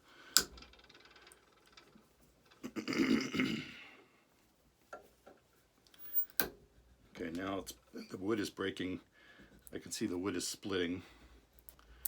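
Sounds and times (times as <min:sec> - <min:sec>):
wood crackling and creaking: 0:00.4 - 0:02.8.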